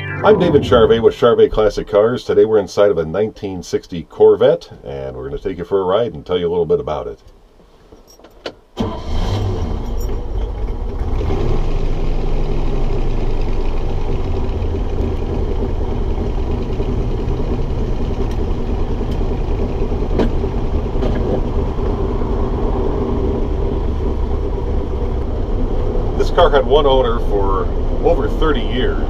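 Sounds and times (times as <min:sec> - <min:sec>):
car engine starting and idling: 0:08.8 - 0:28.8.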